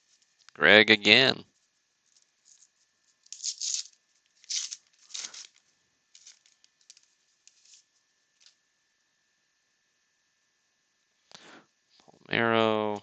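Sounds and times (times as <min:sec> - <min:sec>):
wrapper rustling: 0:01.5 - 0:08.6
card pack wrapper tearing: 0:03.2 - 0:07.8.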